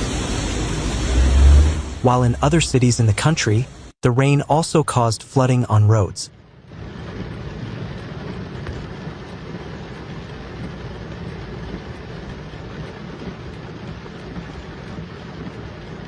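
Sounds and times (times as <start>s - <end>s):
heavy rain: 0.0s - 16.0s
wind: 0.0s - 16.0s.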